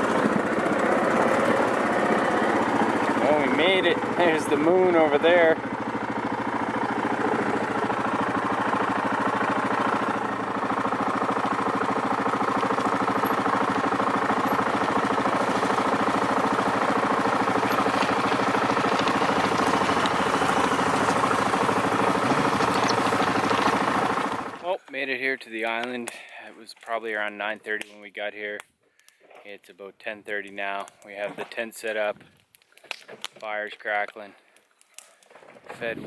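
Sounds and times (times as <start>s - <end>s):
quad engine running: 0.0s - 24.8s.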